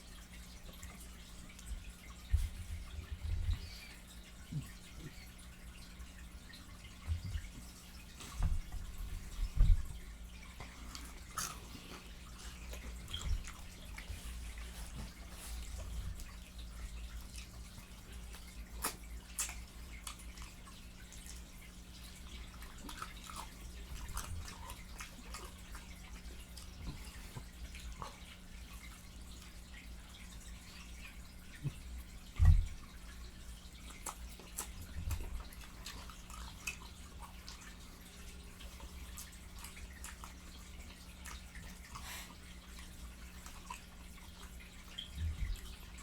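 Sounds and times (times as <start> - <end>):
wet chewing and lip smacking: 10.4 - 29.8, 30.7 - 46.0.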